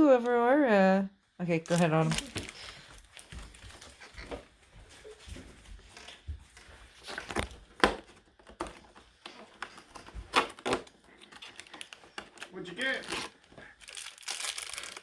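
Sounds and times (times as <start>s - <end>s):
cardboard clicks and crackles: 6.1s - 15.0s
cardboard snaps: 7.2s - 10.9s.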